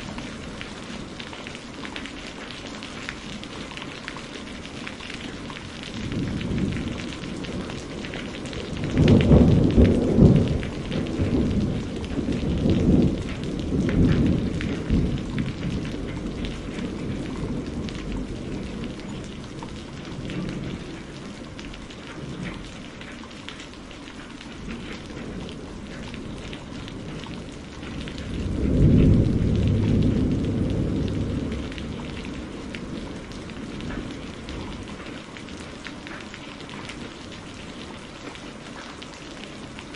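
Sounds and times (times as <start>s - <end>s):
steady rain: 0.0s - 39.9s
thunder rolling: 5.9s - 21.4s, 24.6s - 35.2s.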